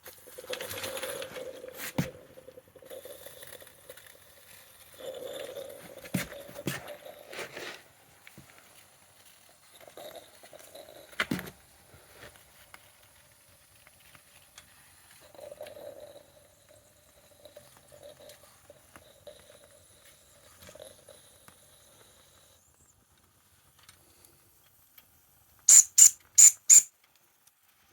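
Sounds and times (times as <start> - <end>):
toy steam engine hissing: 25.7 - 26.9.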